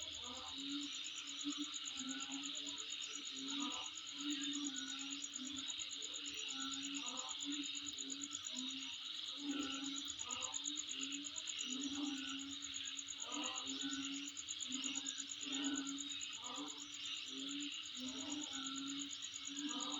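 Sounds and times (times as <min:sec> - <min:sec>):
insect chorus: 0:00.0 - 0:19.9
lower-pitched insect calls: 0:00.0 - 0:19.9.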